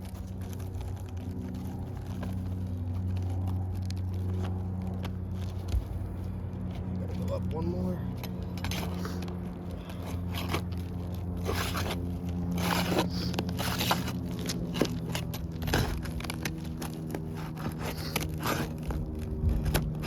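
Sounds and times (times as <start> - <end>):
steady low hum: 0.0 - 20.0
metal bar scraping shingles: 11.4 - 19.0.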